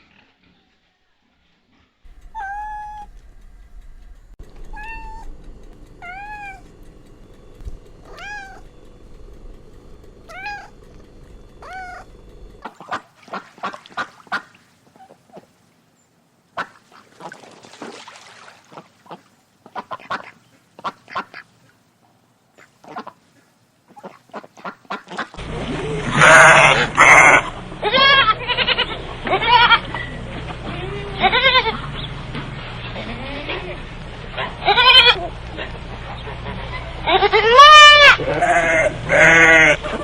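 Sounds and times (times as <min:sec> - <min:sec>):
arching pitched animal calls: 0:02.1 - 0:15.5, 0:22.6 - 0:40.0
rapid harsh animal calls: 0:04.6 - 0:15.6, 0:22.6 - 0:40.0.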